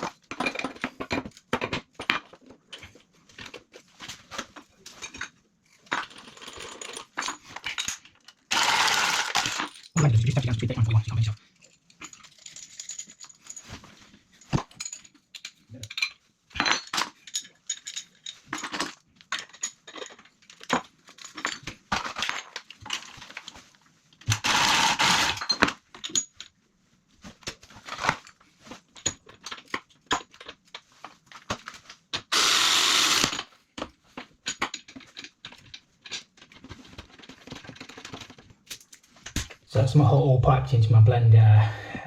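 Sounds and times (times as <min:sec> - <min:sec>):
metal tools clinking on pipe fittings: 0:11.6 - 0:13.8, 0:14.4 - 0:21.7.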